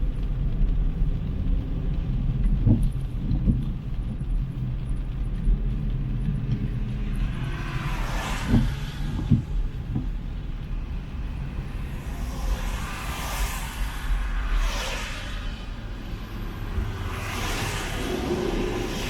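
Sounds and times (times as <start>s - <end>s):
traffic rumble: 0.0s - 19.0s
car passing with tyre hiss: 6.8s - 19.0s.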